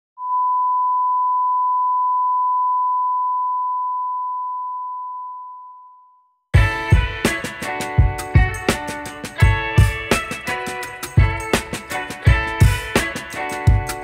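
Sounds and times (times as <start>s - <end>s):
long electronic beep: 0.2s - 6.4s.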